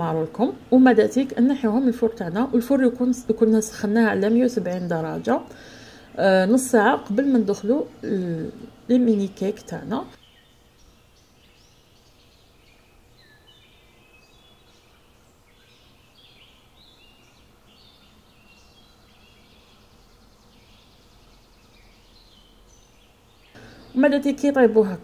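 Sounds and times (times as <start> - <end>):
low steady hum: 0.0 - 25.0
small birds chirping: 0.0 - 25.0.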